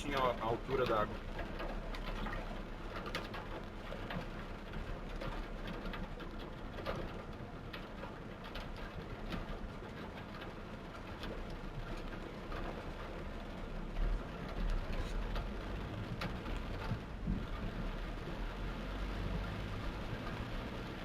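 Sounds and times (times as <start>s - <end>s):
torrential rain: 0.0s - 21.0s.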